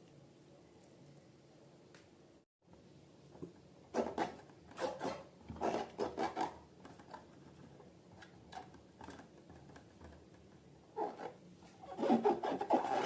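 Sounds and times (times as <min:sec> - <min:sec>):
rubbing and scratching balloons: 0:04.0 - 0:06.6, 0:10.9 - 0:13.0.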